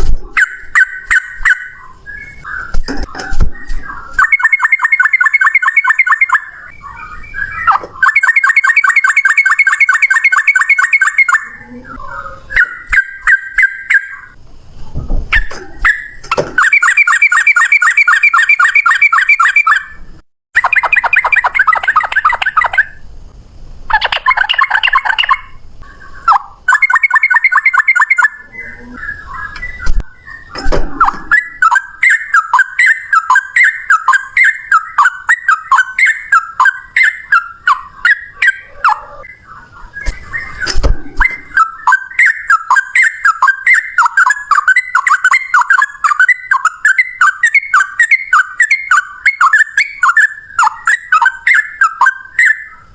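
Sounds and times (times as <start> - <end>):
bird singing repeated notes: 0.0 - 23.1, 23.9 - 52.9
low thumps: 40.6 - 41.6.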